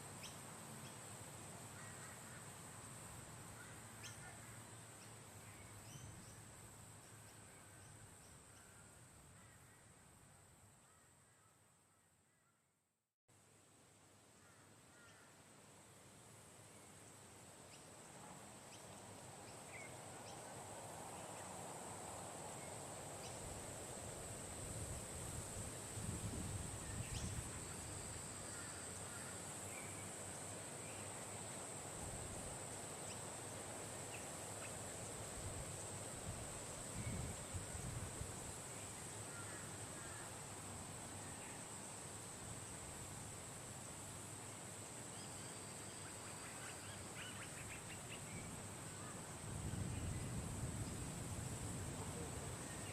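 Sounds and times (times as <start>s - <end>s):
wind rumble on microphone: 24.5s - 28.1s, 35.4s - 38.6s, 49.3s - 52.9s.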